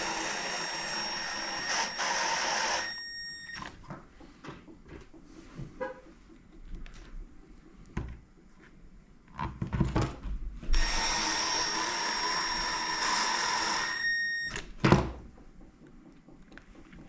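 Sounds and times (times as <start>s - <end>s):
power drill running: 0.0s - 3.7s, 10.7s - 14.6s.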